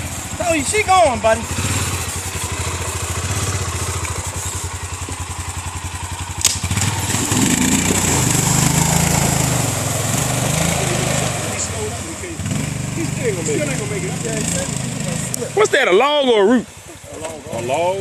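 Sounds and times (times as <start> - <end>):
atv engine idling and revving: 0.0 - 18.0
sharp click: 6.4 - 6.7.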